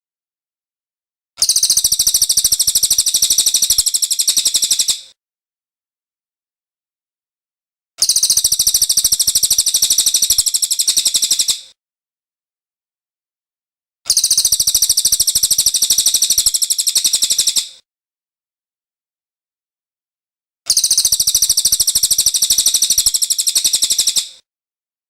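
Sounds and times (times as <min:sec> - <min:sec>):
bird chirping rapidly: 0:01.4 - 0:05.0, 0:08.0 - 0:11.6, 0:14.1 - 0:17.8, 0:20.7 - 0:24.3.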